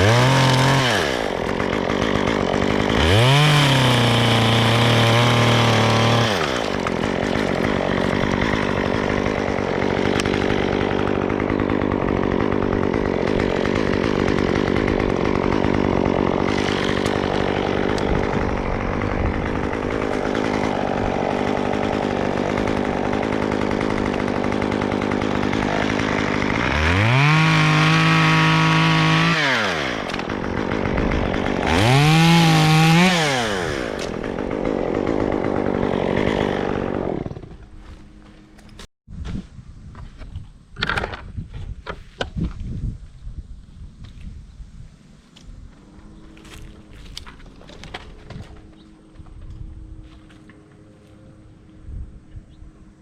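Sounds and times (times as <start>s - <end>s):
chainsaw revving: 0.0s - 37.8s.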